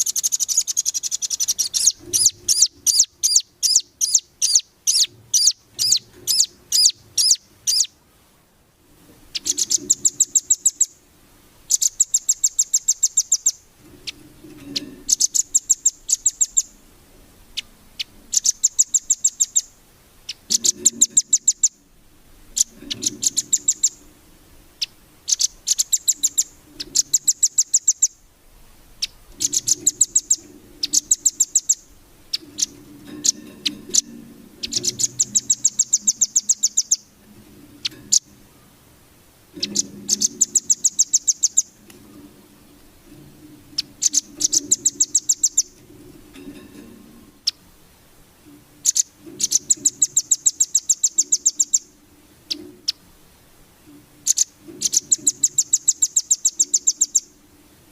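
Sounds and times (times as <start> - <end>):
bird singing rapid high chips: 0.0 - 8.0, 9.3 - 11.0, 11.7 - 16.8, 17.6 - 21.8, 22.5 - 24.1, 24.8 - 28.2, 29.0 - 37.2, 39.6 - 41.8, 43.7 - 45.9, 48.8 - 53.0, 54.2 - 57.4.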